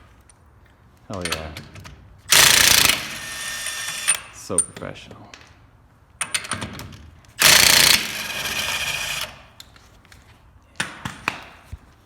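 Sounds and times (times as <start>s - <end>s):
air impact wrench spinning: 2.3s - 4.3s, 7.4s - 9.4s.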